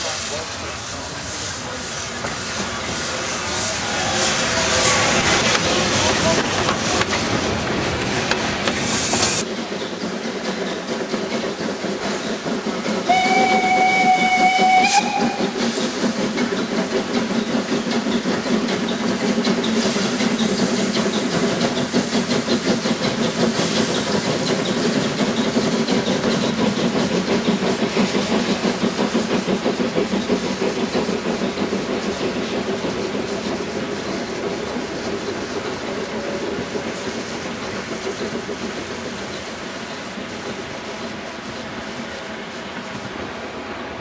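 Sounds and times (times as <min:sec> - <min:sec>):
steam train running: 0:00.0 - 0:44.0
steam whistle: 0:13.1 - 0:15.6.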